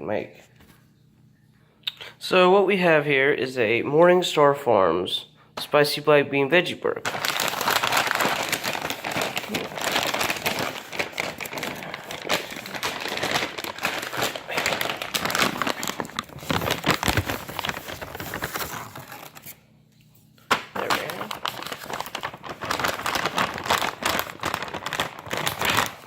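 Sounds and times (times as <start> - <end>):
food packaging crinkling and tearing: 7.1 - 19.6, 20.5 - 26.0.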